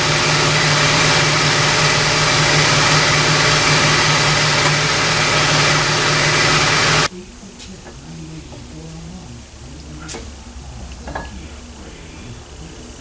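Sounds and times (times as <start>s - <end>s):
motor-driven machine running: 0.0s - 7.1s.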